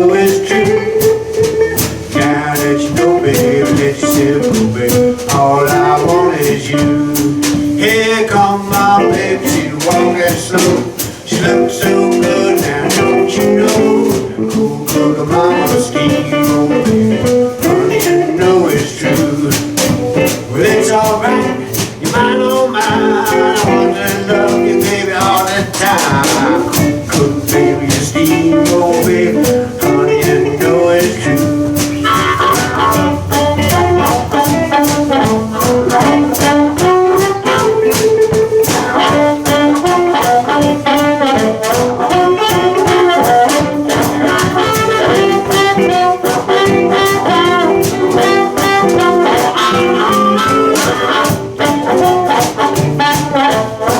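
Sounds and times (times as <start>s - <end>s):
drum kit: 0.0s - 53.9s
electric guitars: 0.0s - 53.9s
harmonica lead with bending notes: 0.0s - 53.9s.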